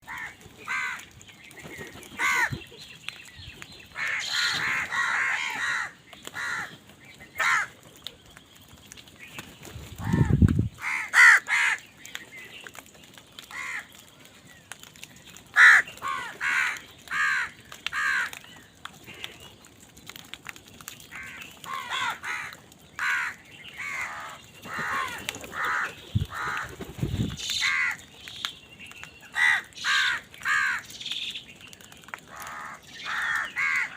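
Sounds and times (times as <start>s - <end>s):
crows cawing: 0.1s - 1.1s, 2.2s - 2.6s, 3.9s - 6.8s, 7.4s - 7.8s, 10.0s - 11.9s, 13.5s - 14.0s, 15.5s - 18.4s, 21.1s - 26.8s, 27.5s - 28.0s, 29.3s - 30.9s, 32.3s - 33.9s.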